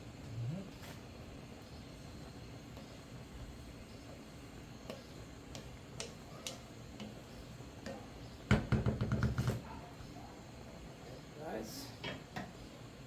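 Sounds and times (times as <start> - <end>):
utensil knocking on cooking pot: 7.8 - 9.6.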